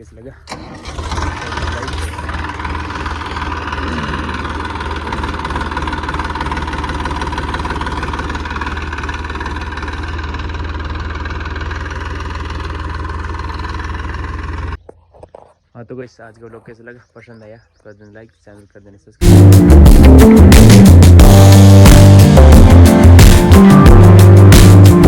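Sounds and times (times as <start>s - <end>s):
tractor diesel engine idling: 0.4s - 14.8s.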